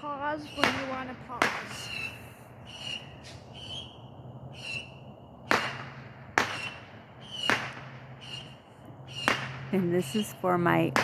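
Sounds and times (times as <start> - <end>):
distant firework bangs: 0.0 - 11.0
high-pitched whistling chirps: 4.6 - 5.0.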